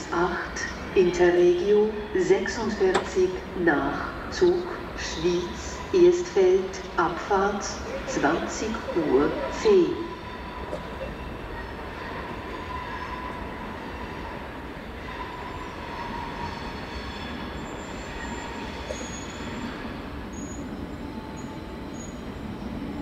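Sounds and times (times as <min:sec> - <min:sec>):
train rail rumble: 0:00.0 - 0:23.0
wheel squeal: 0:15.5 - 0:20.6.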